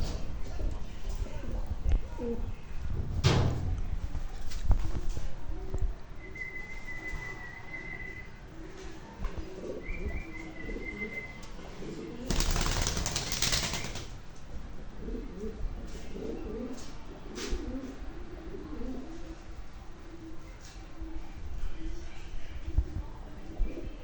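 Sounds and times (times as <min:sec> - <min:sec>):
pigeons cooing: 0:07.1 - 0:21.2
wings flapping: 0:12.3 - 0:14.4.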